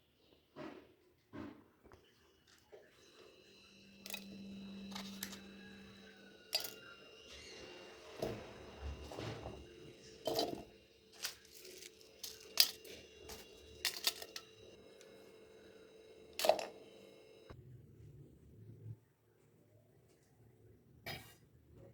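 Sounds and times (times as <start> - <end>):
faint steady hum: 2.0 - 21.0
rustling: 10.3 - 14.5.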